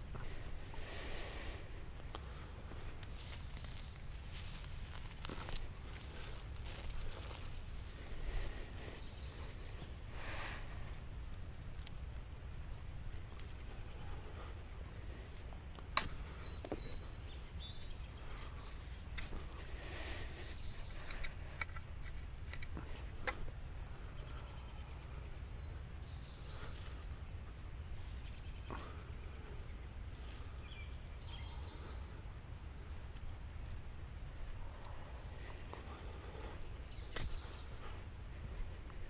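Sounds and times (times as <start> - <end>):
steady low rumble: 0.0 - 39.0
faint bird chirps: 3.2 - 4.4, 8.8 - 9.9, 16.0 - 19.0, 20.2 - 21.4, 24.0 - 27.3, 27.9 - 32.2, 35.9 - 38.0
tools clicking and knocking in soil: 15.5 - 16.8, 18.4 - 19.7, 20.8 - 23.5, 37.0 - 37.5.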